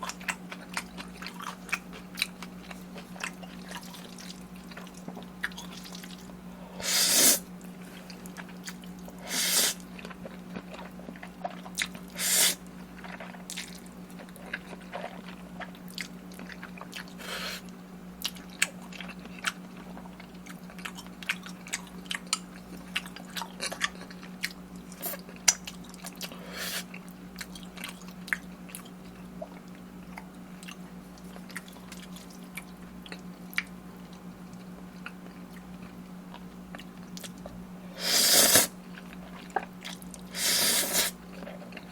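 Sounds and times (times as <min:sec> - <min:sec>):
wet chewing: 0:00.0 - 0:41.9.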